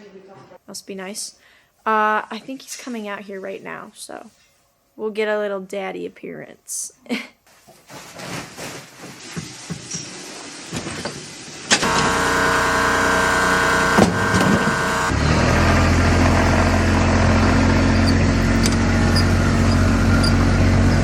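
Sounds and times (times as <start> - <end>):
engine starter click: 11.7 - 15.1, 18.0 - 20.5
engine running: 11.8 - 21.0
starter motor whine: 11.8 - 21.0.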